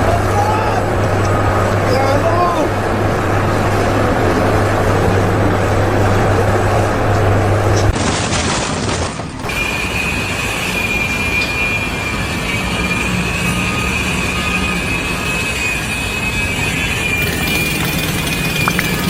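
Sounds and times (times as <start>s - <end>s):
heavy machinery squealing and rumbling: 0.0s - 8.0s, 9.2s - 19.0s.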